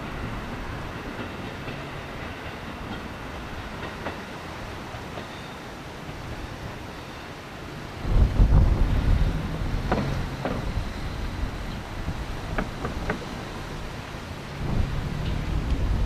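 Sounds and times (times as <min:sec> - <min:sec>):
train rumble: 0:00.0 - 0:16.0
wind buffeting microphone: 0:07.9 - 0:16.0.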